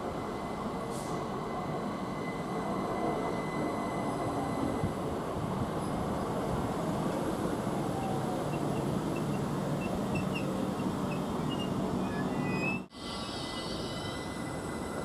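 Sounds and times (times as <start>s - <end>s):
train wheels rumbling on rails: 0.0s - 15.0s
high squeal from wheels: 8.0s - 14.6s.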